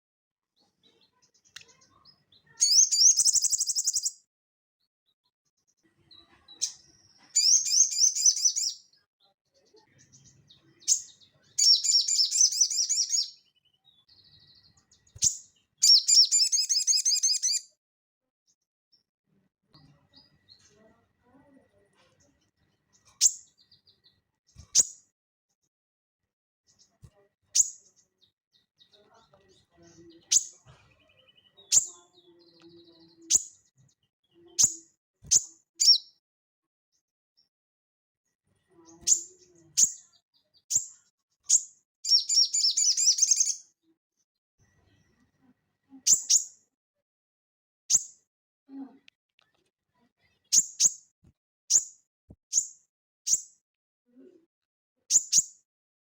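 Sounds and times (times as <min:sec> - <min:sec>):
bird twittering: 0:02.6 - 0:04.2, 0:07.4 - 0:08.8, 0:10.9 - 0:13.4, 0:15.1 - 0:17.6, 0:34.6 - 0:36.1, 0:41.5 - 0:43.6
bird chips: 0:15.1 - 0:17.6.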